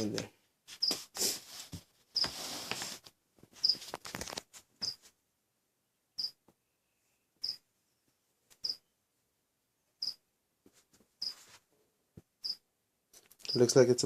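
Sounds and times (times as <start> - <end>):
rustling handling noise: 0.7 - 5.2
small animal chirping: 7.4 - 7.6, 8.6 - 8.8, 10.0 - 10.2.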